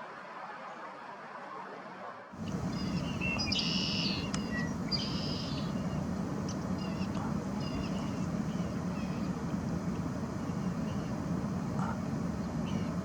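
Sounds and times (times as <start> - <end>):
blackbird buzzy calls: 2.4 - 9.4.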